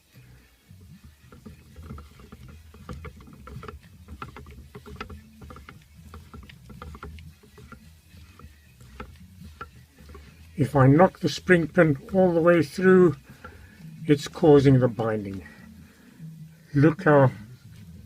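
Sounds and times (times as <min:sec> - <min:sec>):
low steady hum: 0:00.0 - 0:18.0
light metallic clicks and knocks: 0:00.8 - 0:15.5.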